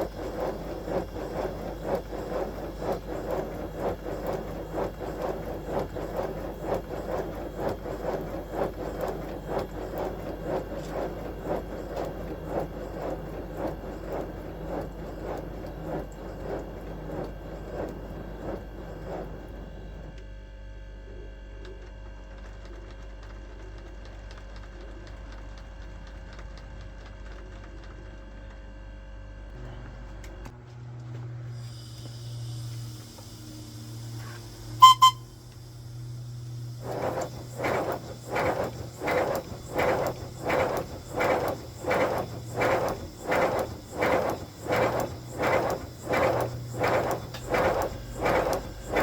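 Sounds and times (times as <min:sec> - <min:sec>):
steady hum: 0:00.0 - 0:20.2, 0:32.5 - 0:49.0
steam locomotive exhaust beats: 0:00.0 - 0:20.2, 0:31.5 - 0:49.0.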